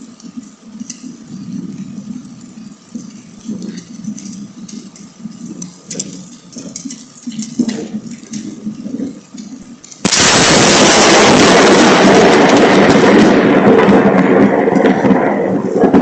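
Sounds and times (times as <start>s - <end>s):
lightning crack: 10.0s - 16.0s
loud thunder rumble: 10.0s - 16.0s.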